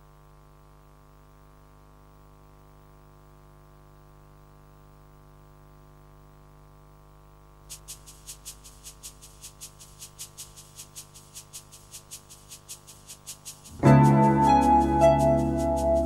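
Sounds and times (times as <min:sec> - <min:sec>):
fast ticking beat: 0:07.7 - 0:16.0
synthesizer drone: 0:13.0 - 0:16.0.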